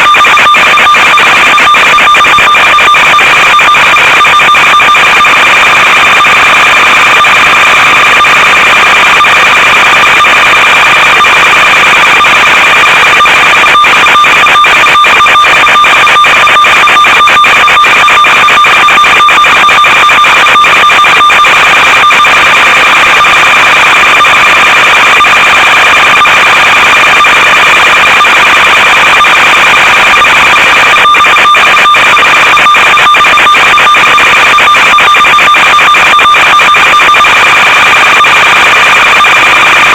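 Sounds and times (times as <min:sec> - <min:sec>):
high electronic tones: 0:00.0 - 0:25.0
signal crackling clicks: 0:00.0 - 0:39.9.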